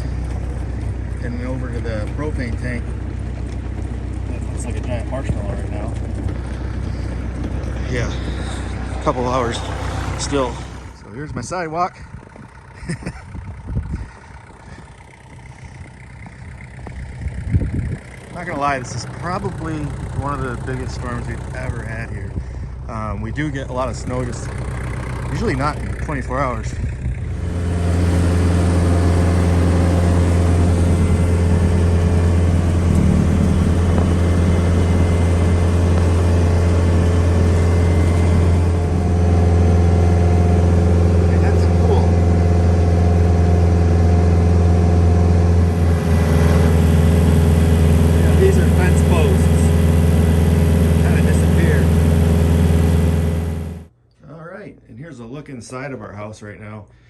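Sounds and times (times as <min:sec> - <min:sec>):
tractor engine running: 0:00.0 - 0:53.9
thin steady whine: 0:27.2 - 0:45.9.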